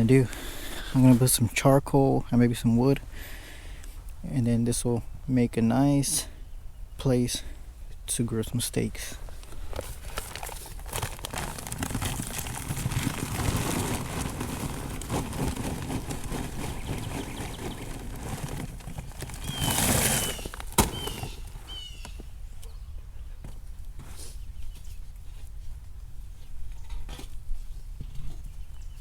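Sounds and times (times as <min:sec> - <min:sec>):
charcoal rustling and clattering: 0:09.4 - 0:22.2
high falling bird chirps: 0:19.4 - 0:22.9.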